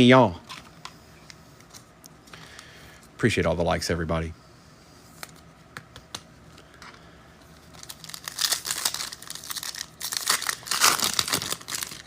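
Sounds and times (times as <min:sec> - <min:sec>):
wrapper crinkling: 0:07.6 - 0:12.0.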